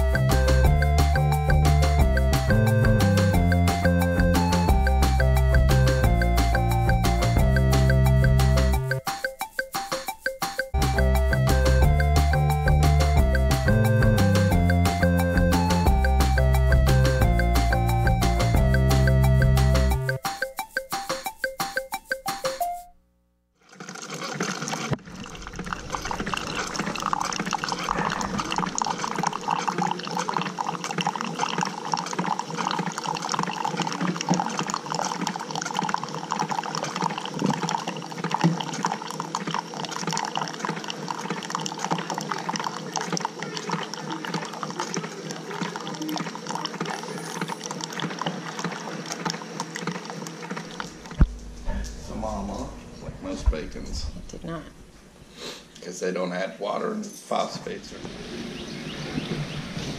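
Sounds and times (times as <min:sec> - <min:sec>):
coffee pouring into mug: 0:23.7 - 0:51.2.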